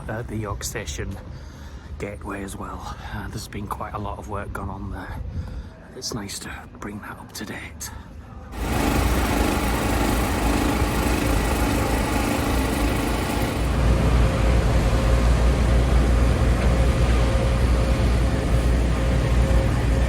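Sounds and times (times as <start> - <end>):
low engine rumble: 8.6 - 20.0.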